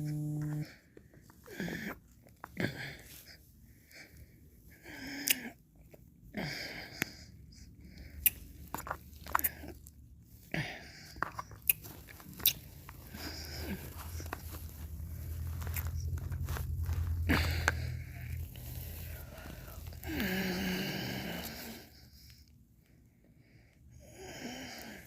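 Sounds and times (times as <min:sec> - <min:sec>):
lip smacks and tongue clicks: 0:05.2 - 0:06.0, 0:11.2 - 0:13.0
wet licking and slurps: 0:11.5 - 0:16.7.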